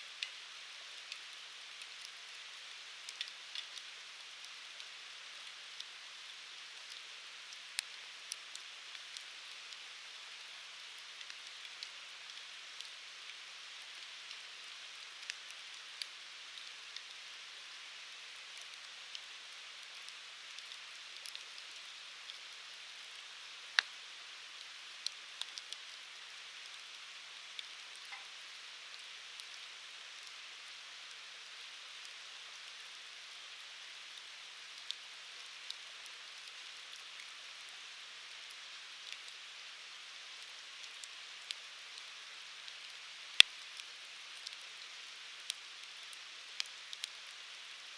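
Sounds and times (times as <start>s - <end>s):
wood fire crackling: 0.2s - 9.8s, 10.9s - 30.4s, 40.8s - 47.9s.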